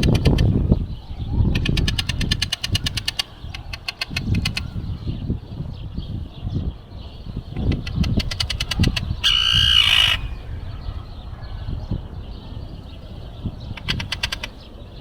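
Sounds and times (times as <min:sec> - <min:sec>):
sharp clicks: 0:01.6 - 0:04.6
gull harsh call: 0:09.2 - 0:10.6.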